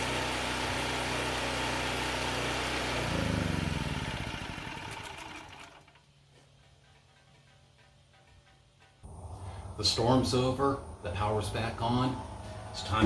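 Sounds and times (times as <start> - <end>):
generator engine running: 0.0 - 6.1.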